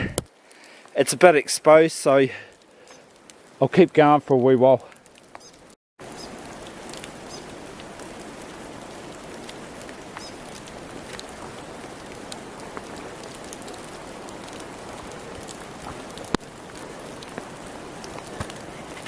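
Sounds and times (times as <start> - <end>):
water dripping from trees: 2.4 - 3.6, 4.9 - 19.0.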